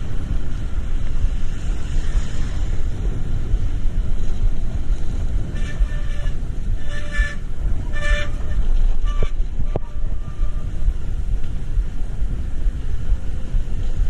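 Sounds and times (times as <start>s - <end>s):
traffic rumble: 0.0s - 14.0s
car horn honks: 5.5s - 10.7s.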